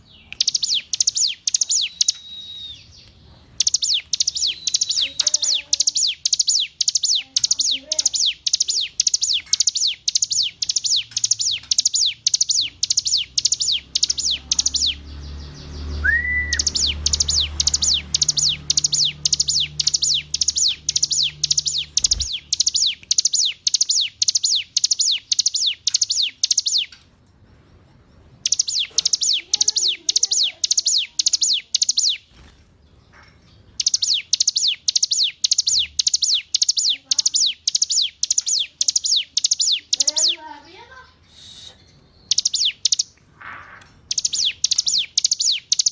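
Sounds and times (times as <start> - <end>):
bird singing sharp high notes: 0.0 - 3.0, 3.6 - 26.9, 28.4 - 32.5, 33.8 - 43.2, 44.0 - 45.9
faint low wavering bird calls: 0.0 - 27.0, 28.4 - 32.4.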